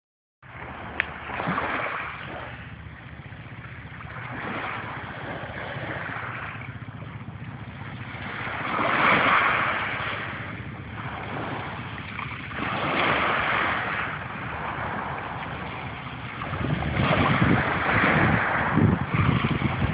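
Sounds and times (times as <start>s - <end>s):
low steady rumble: 0.4s - 19.9s
sea waves washing in: 0.4s - 19.9s.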